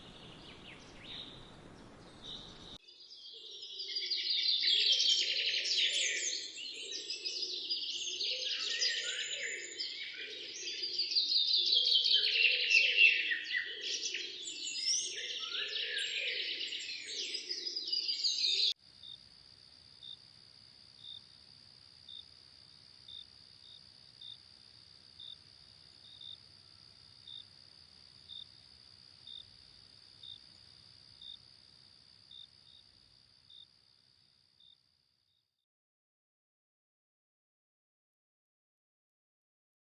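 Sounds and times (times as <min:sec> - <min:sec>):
birds singing: 0:00.0 - 0:18.7
faint insect drone: 0:00.0 - 0:35.6.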